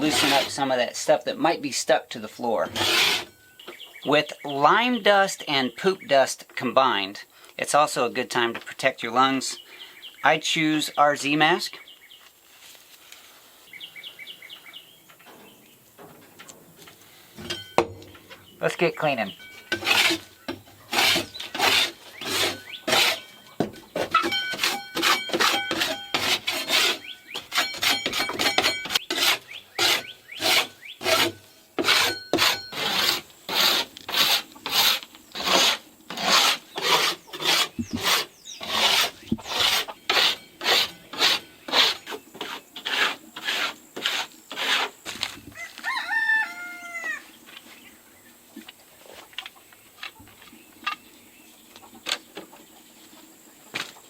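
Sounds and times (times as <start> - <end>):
paint scraper rasping on wood: 0.0 - 0.7, 2.6 - 3.3, 19.7 - 45.0
rooster crowing: 45.6 - 47.3.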